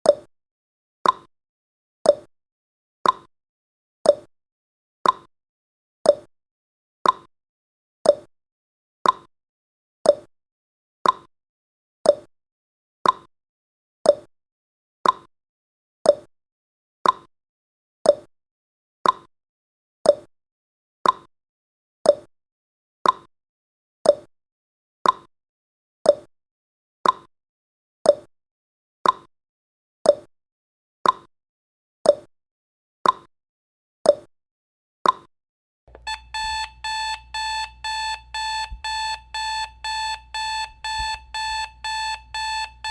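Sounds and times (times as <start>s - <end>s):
clock ticking: 35.9s - 42.9s.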